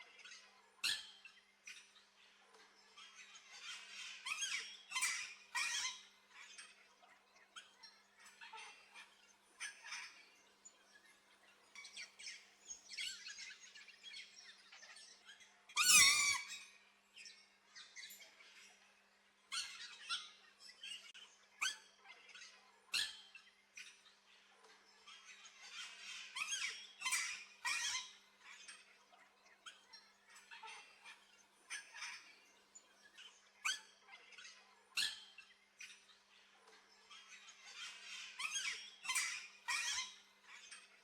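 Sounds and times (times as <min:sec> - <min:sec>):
birds chirping and calling: 0:00.1 - 0:41.0
loud harsh bird squawk: 0:15.8 - 0:16.6.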